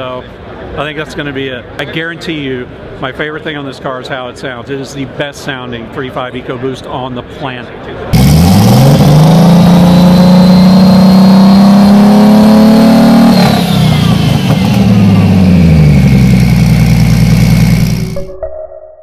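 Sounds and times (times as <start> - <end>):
engine revving: 8.1 - 18.3.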